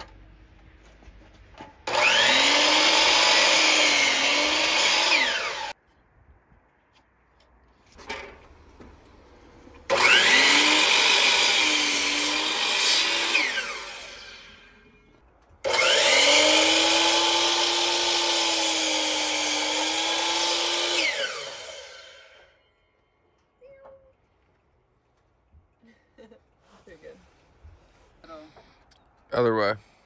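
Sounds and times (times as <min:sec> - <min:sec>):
electric saw cutting lumber: 0:01.8 - 0:05.8, 0:08.0 - 0:22.6.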